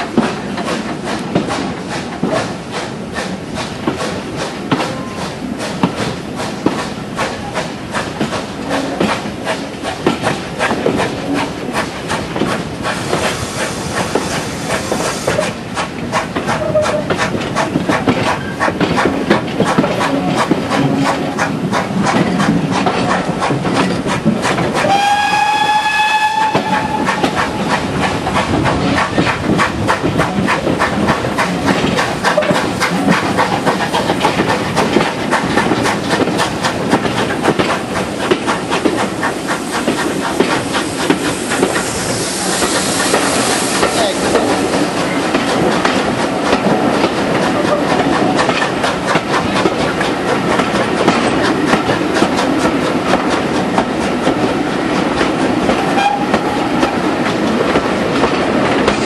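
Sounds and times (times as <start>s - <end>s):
train rumble with wheel clicks: 0.0s - 59.0s
steam locomotive whistle: 24.8s - 27.4s, 55.8s - 56.8s.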